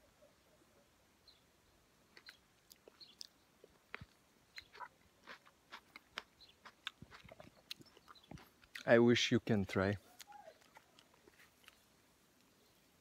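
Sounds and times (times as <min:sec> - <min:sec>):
person biting and chewing fruit: 0:02.1 - 0:08.9, 0:10.1 - 0:11.9.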